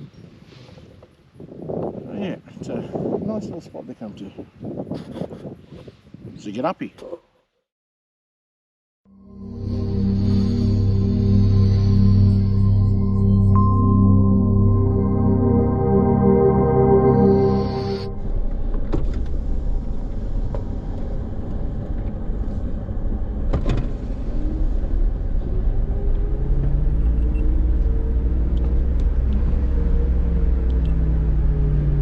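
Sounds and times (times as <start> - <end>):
vehicle engine driving: 9.2 - 32.0.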